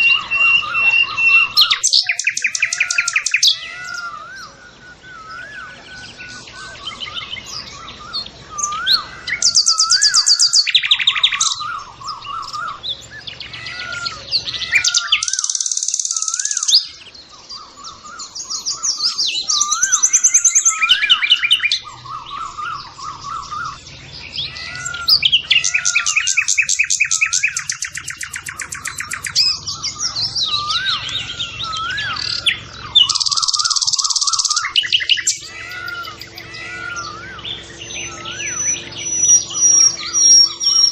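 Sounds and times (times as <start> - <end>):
short whistled bird call: 0.0 - 13.2, 14.1 - 23.8
birds chirping and trilling: 0.0 - 40.9.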